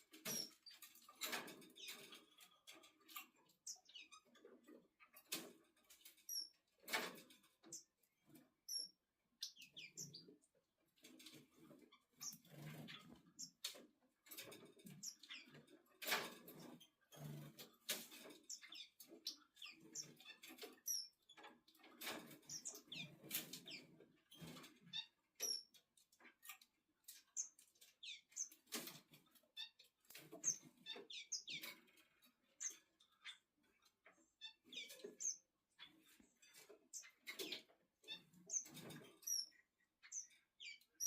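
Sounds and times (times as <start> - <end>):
tiny high bird chirps: 8.7 - 10.3, 29.5 - 31.7, 36.9 - 41.0.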